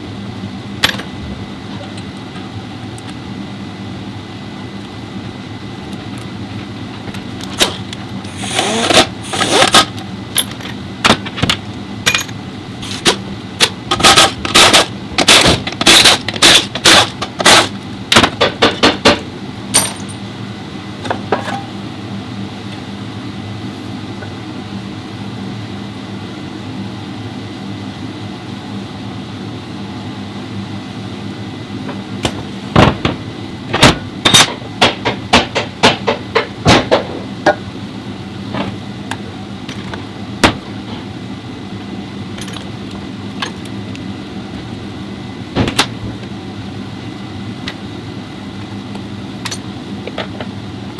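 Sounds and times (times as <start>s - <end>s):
steady low hum: 0.0s - 50.9s
metal tools clinking: 19.6s - 20.2s.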